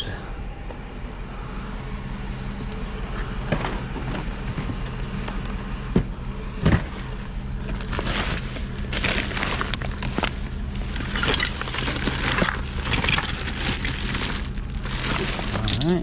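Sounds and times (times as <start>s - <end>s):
vehicle engine idling: 0.0s - 16.0s
rustling and crackling of items: 6.7s - 16.0s.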